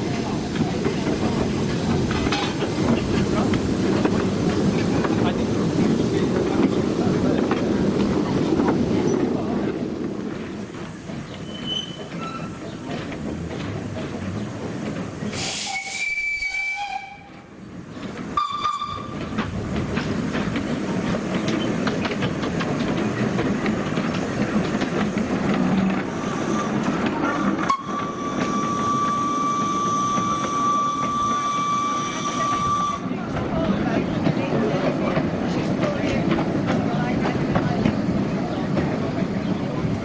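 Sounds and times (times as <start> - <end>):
steam train wheels and steam: 0.0 - 40.0
steam whistle blasts: 15.4 - 17.3, 18.4 - 19.1, 27.4 - 33.1.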